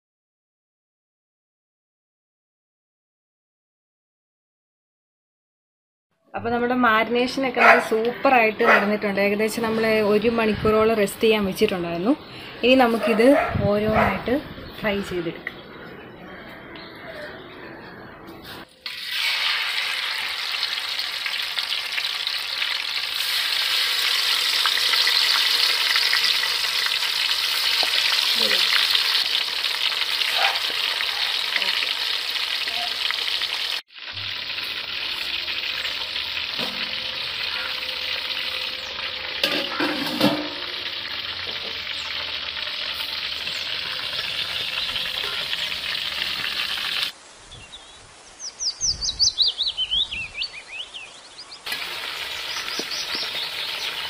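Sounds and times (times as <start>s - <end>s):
loud steady deep-frying sizzle: 8.1s - 13.0s, 18.6s - 54.0s.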